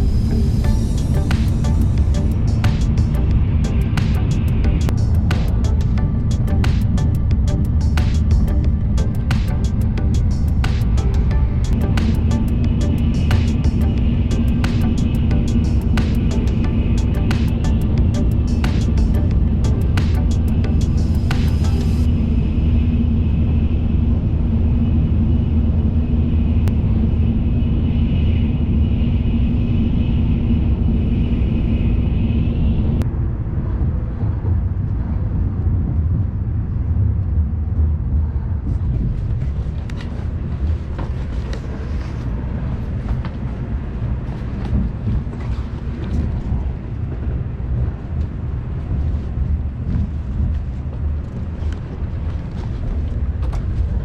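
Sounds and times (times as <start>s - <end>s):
steady high tone: 0.0s - 24.0s
train interior rumble: 0.0s - 54.0s.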